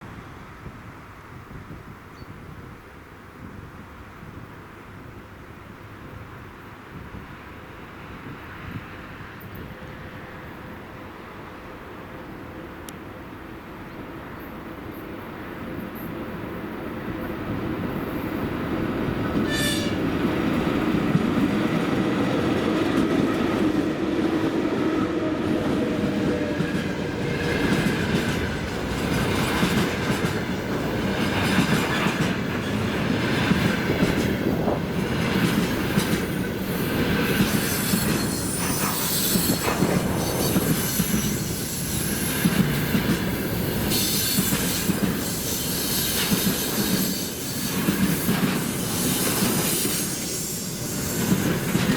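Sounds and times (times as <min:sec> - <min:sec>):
freight train rumbling past: 0:00.0 - 0:51.9
wheel squeal: 0:19.4 - 0:20.0, 0:37.5 - 0:42.4.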